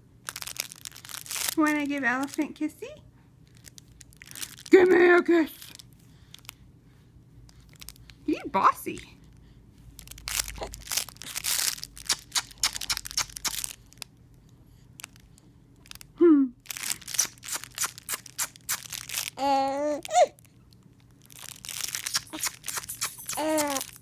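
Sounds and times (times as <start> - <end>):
crinkling handling noise: 0.2 - 2.7, 3.4 - 6.6, 7.4 - 8.2, 9.2 - 24.0
baby vocalizing: 19.4 - 20.4, 22.1 - 24.0.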